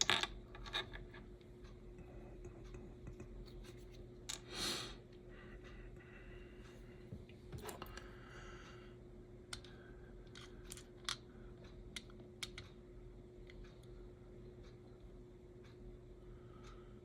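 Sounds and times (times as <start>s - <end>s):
faint steady hum: 0.0s - 17.0s
small clicks and taps of tools: 9.5s - 12.8s.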